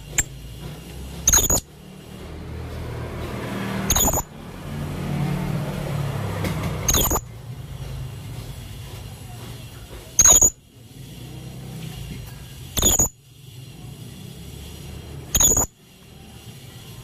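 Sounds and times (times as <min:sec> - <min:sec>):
parrot shrill calls: 0:01.3 - 0:01.7, 0:03.9 - 0:04.3, 0:12.8 - 0:13.2.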